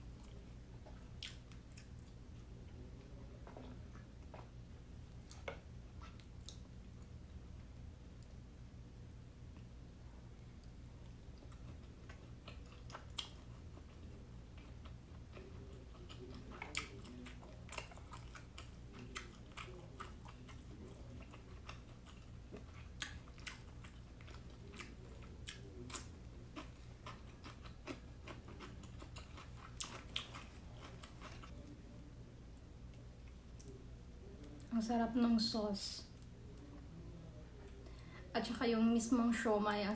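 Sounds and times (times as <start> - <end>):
person chewing dumplings: 0.0 - 2.8, 10.6 - 31.7
low room hum: 0.0 - 39.9.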